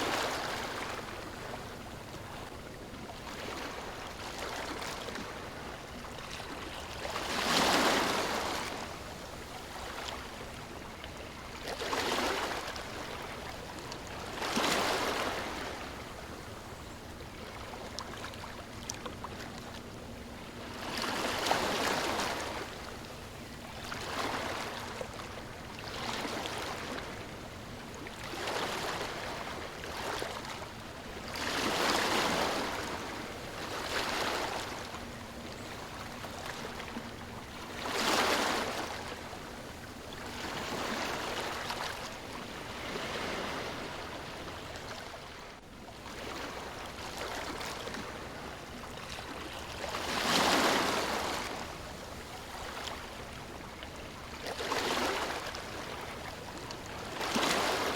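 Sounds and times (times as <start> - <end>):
ocean waves washing ashore: 0.0 - 57.9.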